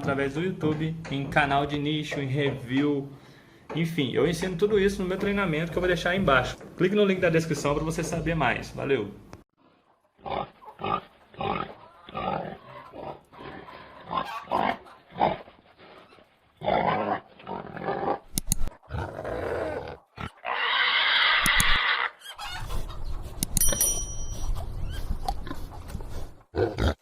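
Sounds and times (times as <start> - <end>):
pigs grunting: 9.6 - 22.9, 24.8 - 27.0
pig squealing: 10.2 - 15.4, 16.1 - 18.2, 18.9 - 23.0.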